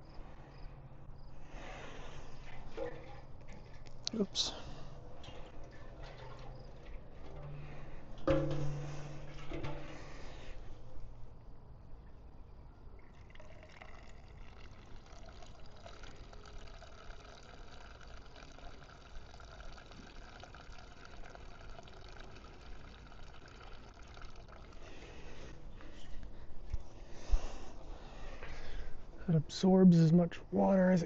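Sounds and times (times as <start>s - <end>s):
fuel pouring into metal tank: 1.2s - 11.3s, 12.9s - 26.3s.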